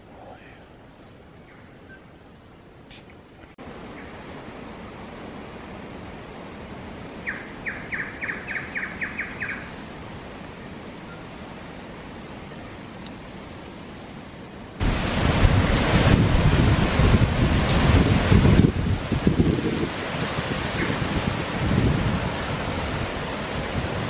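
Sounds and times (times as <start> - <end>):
birds calling sharp notes: 7.2 - 9.7
wind gust on microphone: 14.8 - 24.0.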